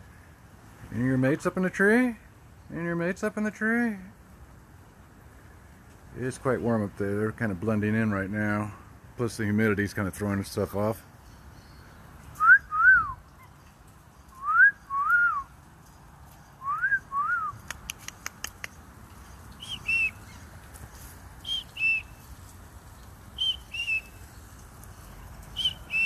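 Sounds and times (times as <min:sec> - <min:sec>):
two-note whistles: 0:12.4 - 0:13.2, 0:14.3 - 0:15.5, 0:16.6 - 0:17.6, 0:19.6 - 0:20.2
quick run of clicks: 0:17.6 - 0:18.9.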